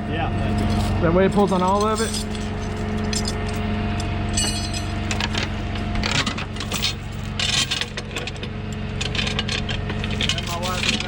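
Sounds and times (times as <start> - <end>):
engine idling: 0.0 - 11.0
chain and hook clinking: 0.5 - 3.6, 4.3 - 8.3, 9.1 - 11.0.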